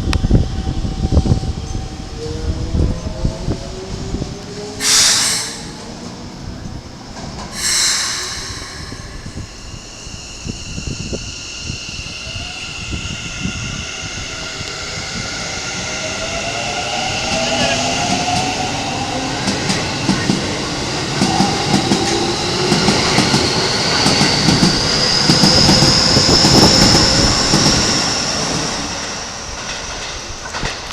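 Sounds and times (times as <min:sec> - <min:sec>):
rail joint clacks: 0:17.1 - 0:30.9.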